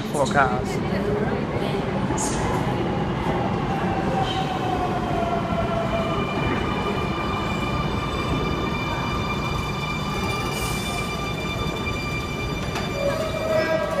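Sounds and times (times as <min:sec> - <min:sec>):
electric train rumbling: 0:00.0 - 0:14.0
electric train whine: 0:03.2 - 0:14.0.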